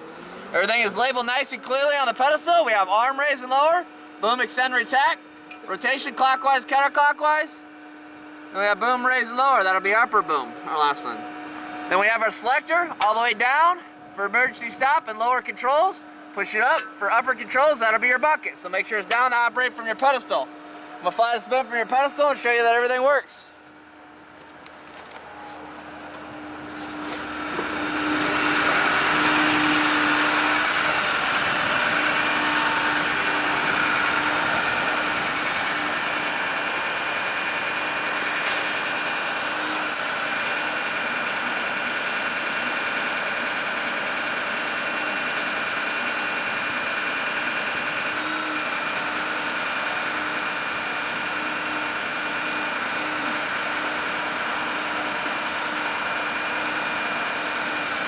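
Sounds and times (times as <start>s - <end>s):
hydraulic whine: 0.0s - 58.0s
truck engine hum: 23.5s - 58.0s.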